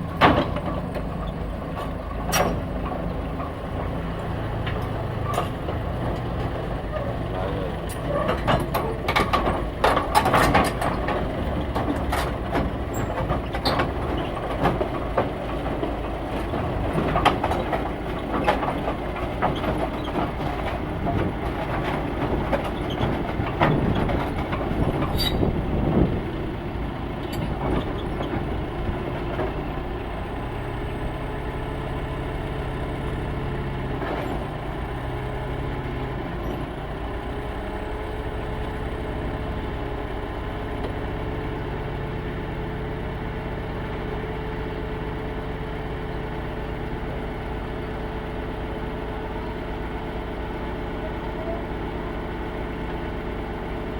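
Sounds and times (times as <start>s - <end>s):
metal clanks and knocks: 0.0s - 4.0s, 4.6s - 26.2s
heavy vehicle engine running: 0.0s - 53.9s.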